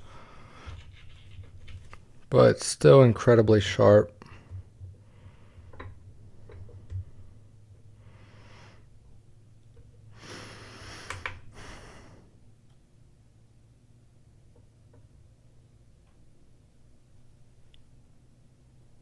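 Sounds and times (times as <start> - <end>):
person breathing: 0.0 - 1.0, 4.2 - 5.8, 7.9 - 9.0, 10.1 - 12.4.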